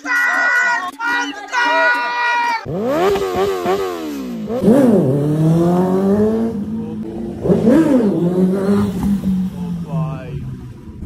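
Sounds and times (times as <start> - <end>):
motorcycle engine revving: 2.6 - 11.0.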